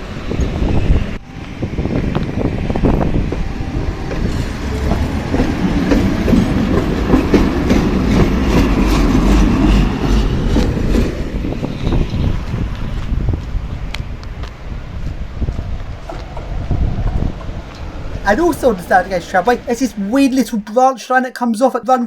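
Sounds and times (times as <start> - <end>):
tram rumbling on rails: 0.0 - 20.9
wheels clattering over track joints: 4.2 - 13.0.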